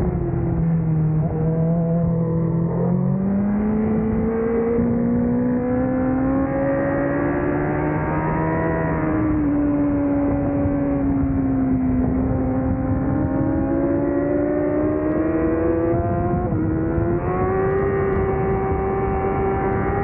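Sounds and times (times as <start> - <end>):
motorcycle engine revving: 0.0 - 20.0
wind noise: 0.0 - 20.0.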